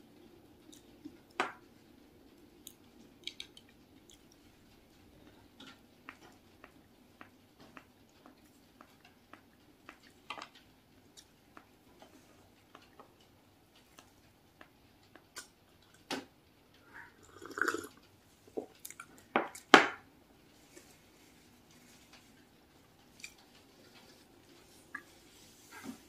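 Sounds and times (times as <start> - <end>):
bread being chewed: 2.6 - 5.5.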